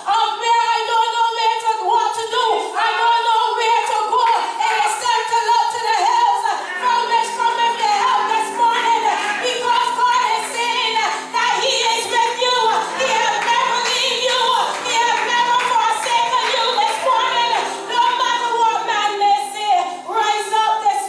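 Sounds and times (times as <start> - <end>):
music: 0.0 - 21.0
person singing: 0.0 - 21.0.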